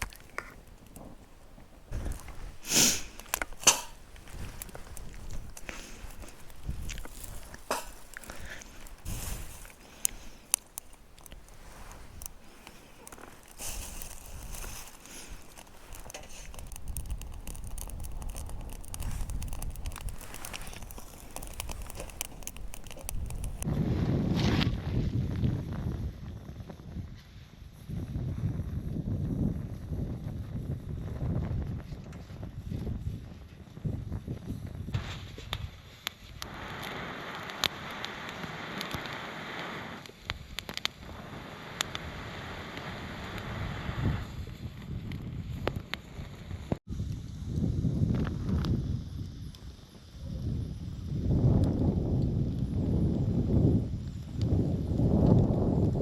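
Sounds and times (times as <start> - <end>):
steady hiss: 0.0 - 23.7, 35.0 - 55.1
campfire crackling and popping: 0.0 - 23.8, 28.5 - 56.0.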